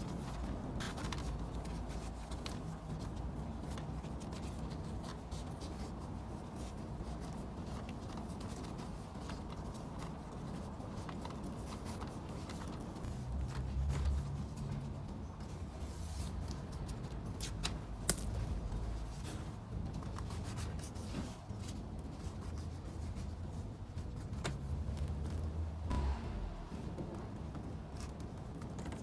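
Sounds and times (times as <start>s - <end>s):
steady low hum: 25.9s - 27.6s.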